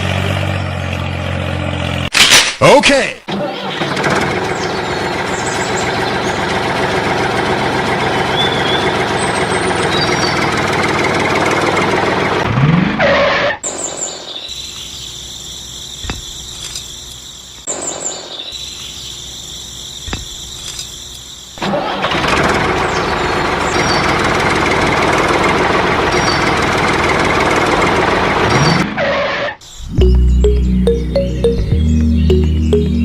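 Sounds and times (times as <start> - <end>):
tractor engine running: 0.0 - 2.1, 3.3 - 12.6, 15.6 - 17.7, 19.7 - 28.8.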